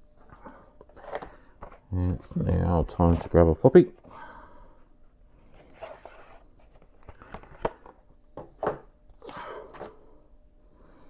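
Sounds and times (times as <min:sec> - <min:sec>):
rustling and sliding scrapes: 0:05.4 - 0:07.6.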